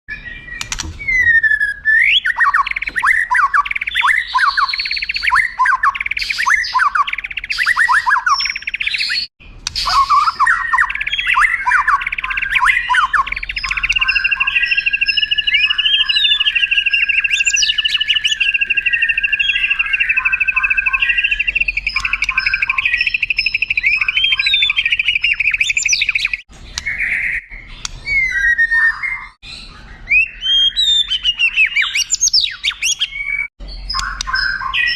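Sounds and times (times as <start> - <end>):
bird singing whistles and trills: 0.1 - 34.9.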